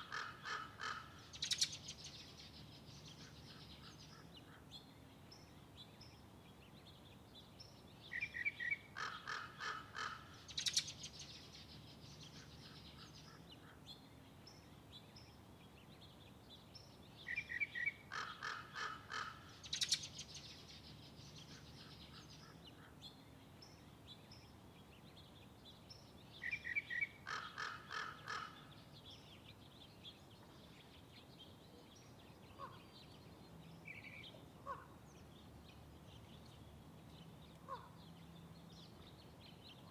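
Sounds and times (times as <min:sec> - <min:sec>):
faint bird calls: 0:00.0 - 0:04.9, 0:08.2 - 0:14.1, 0:17.3 - 0:23.2, 0:26.4 - 0:29.2, 0:31.7 - 0:33.3, 0:33.9 - 0:35.4, 0:37.5 - 0:38.2
songbird singing: 0:00.0 - 0:39.9.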